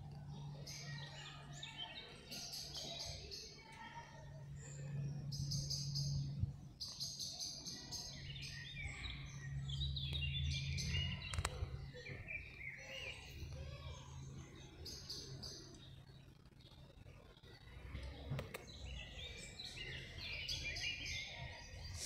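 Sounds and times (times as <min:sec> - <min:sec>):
small birds chirping: 0:00.0 - 0:22.0
steady low hum: 0:00.0 - 0:22.0
brief clicks: 0:11.2 - 0:11.6.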